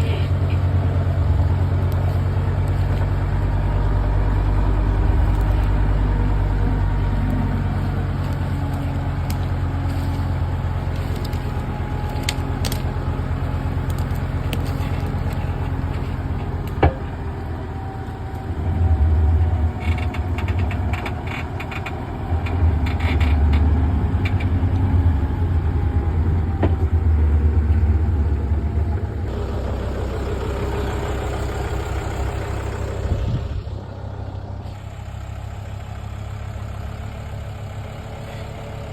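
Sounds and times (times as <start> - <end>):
heavy diesel engine running: 0.0 - 38.9
crackling bursts: 4.6 - 16.8.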